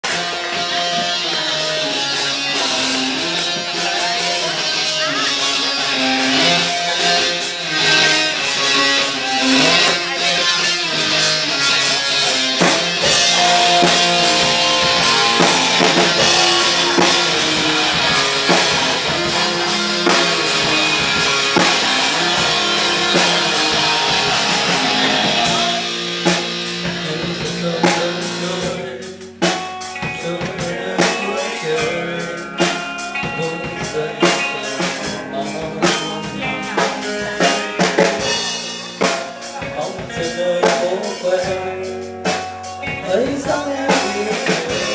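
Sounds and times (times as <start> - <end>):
drum kit: 0.0 - 44.9
electric guitar: 0.0 - 44.9.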